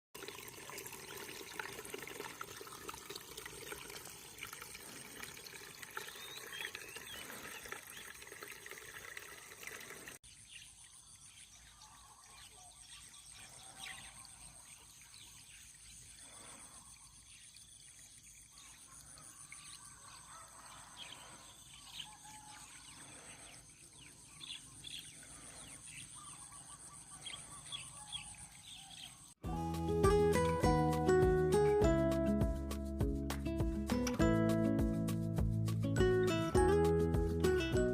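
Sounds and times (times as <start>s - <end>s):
birds chirping: 5.6s - 8.6s, 9.7s - 29.4s.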